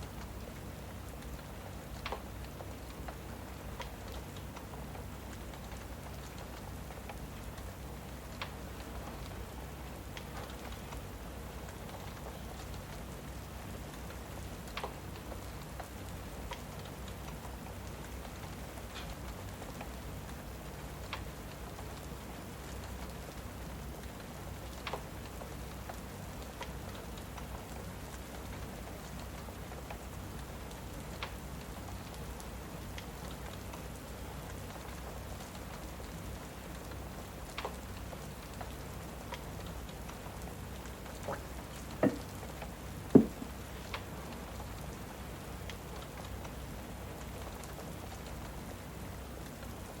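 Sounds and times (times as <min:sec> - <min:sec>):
steady rain: 0:00.0 - 0:50.0
wood fire crackling and popping: 0:00.1 - 0:48.6
fireplace crackling: 0:32.3 - 0:48.6.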